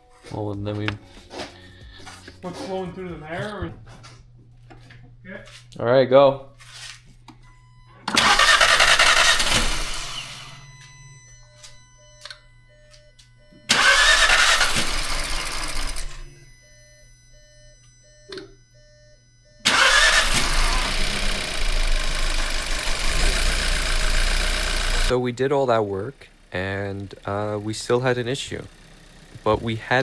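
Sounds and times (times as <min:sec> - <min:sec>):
car engine starting and running: 0:07.6 - 0:11.2, 0:13.5 - 0:16.5, 0:19.6 - 0:30.0.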